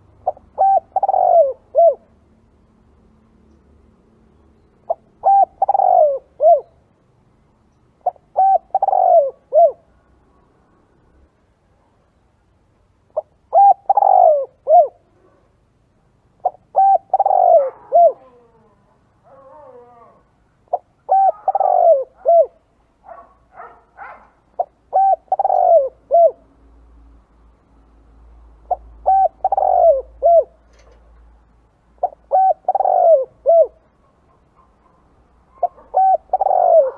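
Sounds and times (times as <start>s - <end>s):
dove cooing: 0.2s - 2.2s, 4.9s - 6.8s, 8.0s - 9.9s, 13.2s - 15.5s, 16.4s - 26.5s, 28.7s - 30.6s, 32.0s - 36.9s.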